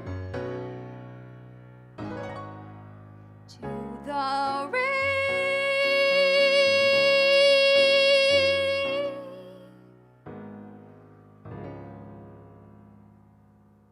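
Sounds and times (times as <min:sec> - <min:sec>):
piano accompaniment: 0:00.0 - 0:13.9
woman singing: 0:03.5 - 0:09.9.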